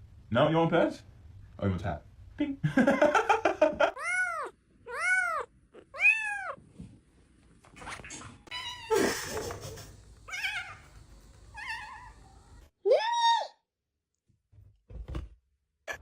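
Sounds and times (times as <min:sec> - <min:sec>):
cat meowing: 0:04.0 - 0:06.6.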